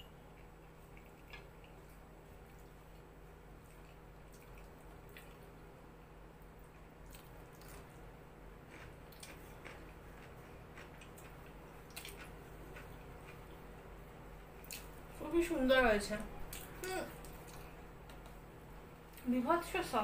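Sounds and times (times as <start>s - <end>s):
steady low hum: 0.0s - 20.0s
chewing and mouth clicks: 0.3s - 5.5s, 6.6s - 8.0s, 8.7s - 13.8s, 14.6s - 15.0s, 16.5s - 18.4s.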